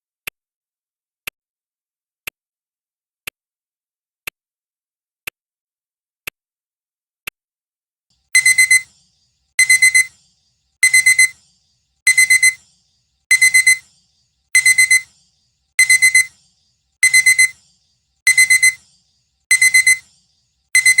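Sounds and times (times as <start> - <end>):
clock ticking: 8.4 - 8.9, 9.6 - 10.1, 10.8 - 11.4, 12.1 - 12.6, 13.3 - 13.8, 14.6 - 15.1, 15.8 - 16.3, 17.0 - 17.6, 18.3 - 18.8, 19.5 - 20.0
digital alarm beeps: 8.4 - 8.9, 9.6 - 10.2, 10.8 - 11.4, 12.1 - 12.6, 13.3 - 13.9, 14.6 - 15.2, 15.8 - 16.4, 17.0 - 17.6, 18.2 - 18.9, 19.5 - 20.1, 20.7 - 21.0.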